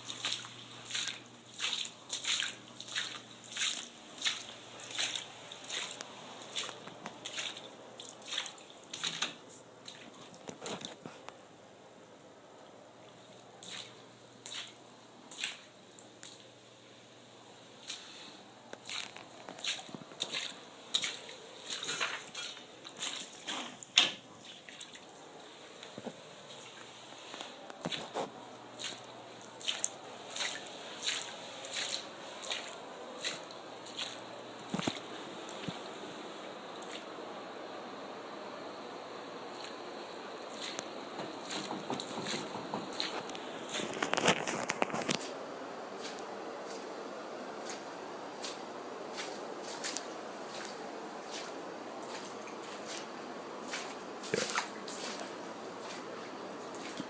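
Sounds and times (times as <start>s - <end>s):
rhythmic wet squishing: 0.0s - 11.0s, 13.4s - 16.5s, 17.8s - 37.2s, 39.4s - 45.3s, 47.6s - 57.0s
steady low hum: 0.0s - 57.0s.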